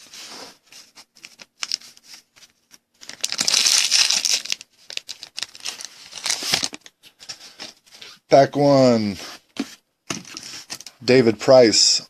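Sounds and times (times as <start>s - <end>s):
wrapper tearing and crinkling: 3.0s - 6.9s.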